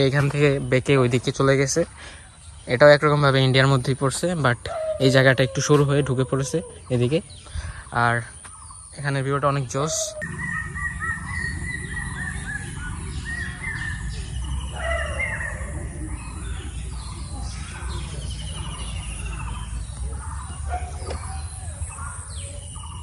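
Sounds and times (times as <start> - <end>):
birds chirping and trilling: 0.0 - 23.0
steady low rumble: 10.2 - 22.9.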